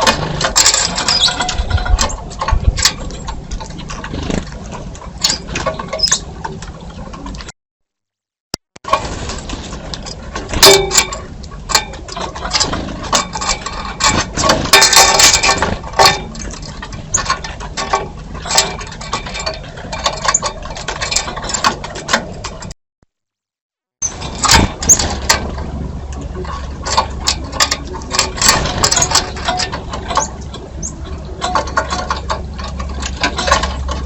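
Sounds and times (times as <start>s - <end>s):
birds tapping: 0.0s - 7.5s, 24.0s - 34.0s
steady low hum: 0.0s - 7.5s, 24.0s - 34.0s.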